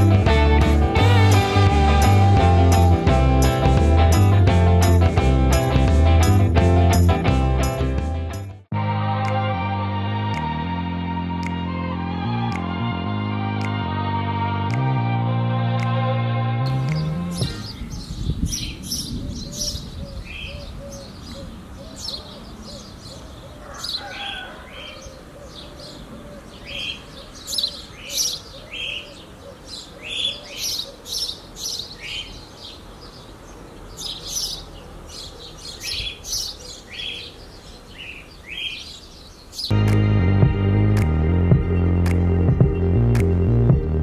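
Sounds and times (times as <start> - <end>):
small birds chirping: 16.7 - 39.8.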